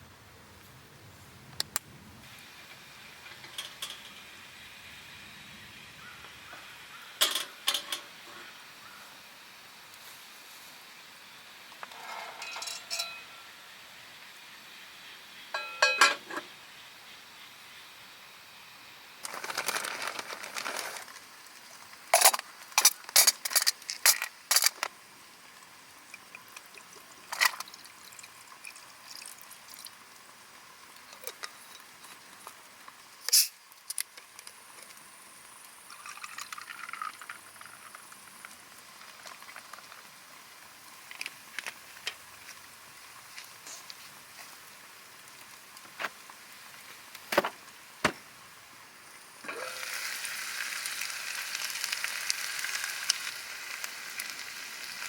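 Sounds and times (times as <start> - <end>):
liquid pouring: 26.0 - 30.1, 35.9 - 38.3.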